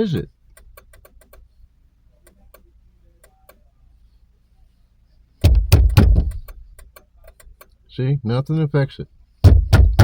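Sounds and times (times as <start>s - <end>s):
faint relay-like clicking in dashboard: 0.0s - 4.0s, 5.4s - 8.0s
loud bump: 5.4s - 6.5s, 9.4s - 10.0s.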